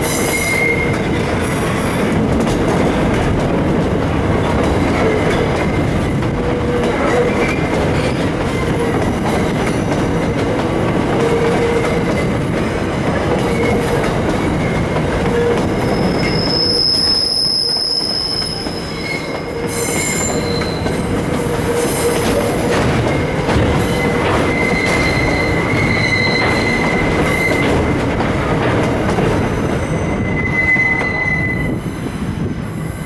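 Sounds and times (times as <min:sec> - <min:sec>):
train wheels rumbling on rails: 0:00.0 - 0:33.0
high-pitched wheel squeal: 0:15.4 - 0:22.7, 0:23.8 - 0:27.7, 0:29.9 - 0:32.2.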